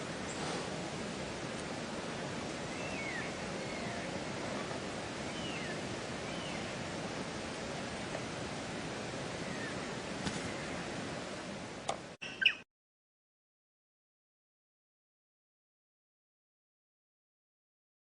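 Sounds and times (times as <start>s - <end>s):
steady hiss: 0.0s - 12.2s.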